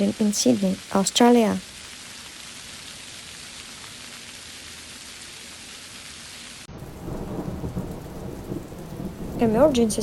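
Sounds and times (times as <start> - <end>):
heavy rain hissing: 0.0 - 10.0
deep storm rumble: 6.7 - 10.0.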